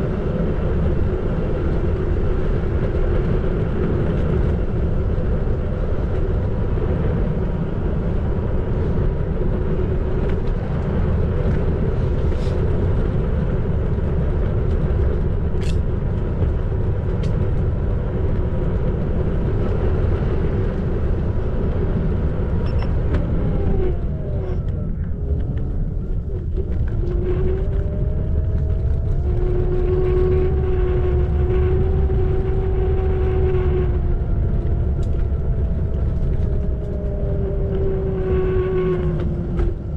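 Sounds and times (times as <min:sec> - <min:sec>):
wind and tyres on road: 0:00.0 - 0:39.9
electric motor whine: 0:22.0 - 0:39.9.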